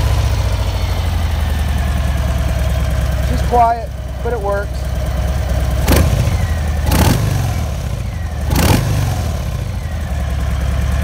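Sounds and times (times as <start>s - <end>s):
motorcycle engine idling: 0.0s - 11.0s
motorcycle throttle revs: 4.9s - 11.0s.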